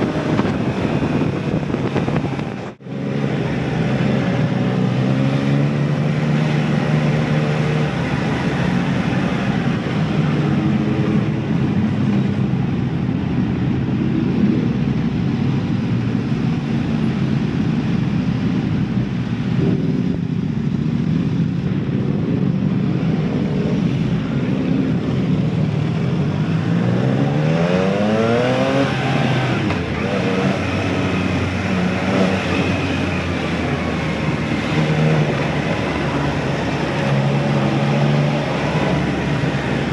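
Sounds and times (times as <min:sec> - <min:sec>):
motorcycle engine revving: 0:00.0 - 0:12.6, 0:21.2 - 0:39.9.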